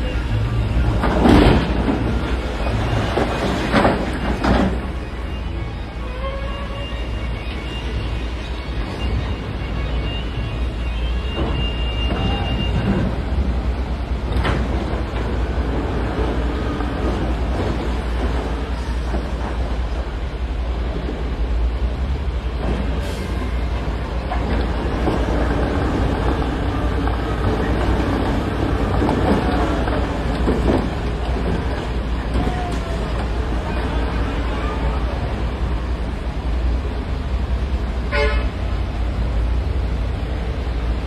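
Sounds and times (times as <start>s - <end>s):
deep diesel engine rumble: 12.6s - 41.0s.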